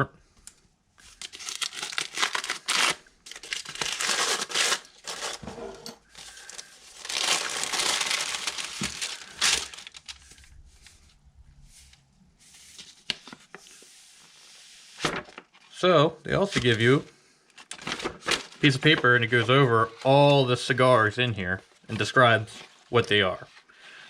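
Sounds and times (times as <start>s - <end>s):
paper packaging crinkling: 1.0s - 5.5s, 6.1s - 12.0s, 17.6s - 20.4s.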